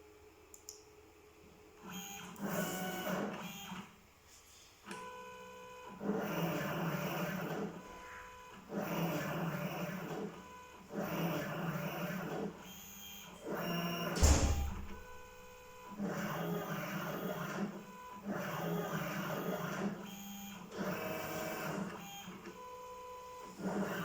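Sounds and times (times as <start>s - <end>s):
loud knock: 14.2s - 15.2s.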